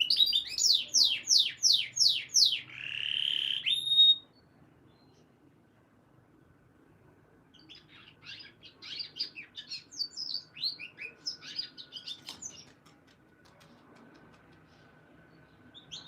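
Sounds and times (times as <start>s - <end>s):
canary singing: 0.0s - 5.3s, 7.5s - 12.8s, 14.6s - 16.0s.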